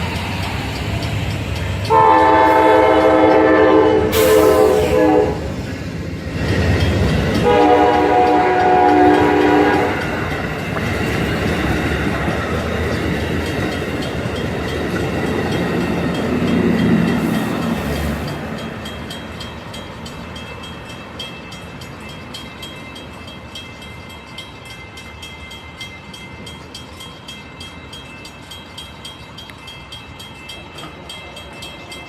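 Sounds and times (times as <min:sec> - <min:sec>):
train wheels rumbling on rails: 0:00.0 - 0:32.0
train horn blasts: 0:01.8 - 0:05.6, 0:07.4 - 0:10.0.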